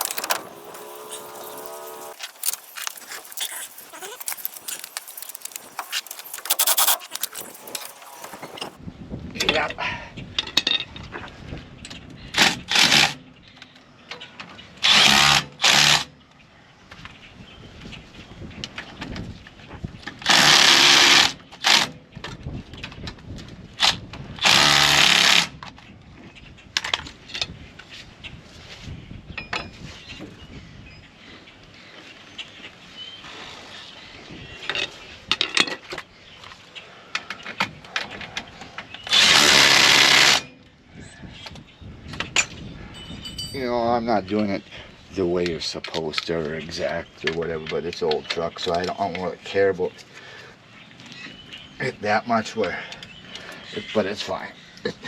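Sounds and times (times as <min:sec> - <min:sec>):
power tool bursts: 0:00.0 - 0:08.8, 0:39.1 - 0:40.5.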